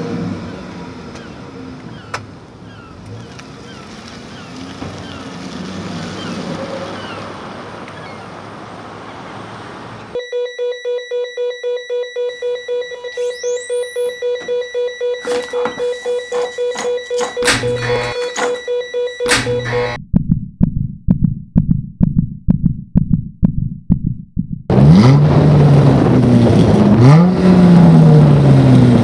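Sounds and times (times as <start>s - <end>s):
road and wind noise: 0.0s - 10.2s, 24.7s - 29.0s
electronic music: 10.2s - 20.0s
pulsing synth beeps: 10.2s - 21.8s
rising synth sweep: 12.3s - 16.2s
car engine revving: 17.3s - 18.5s, 24.7s - 29.0s.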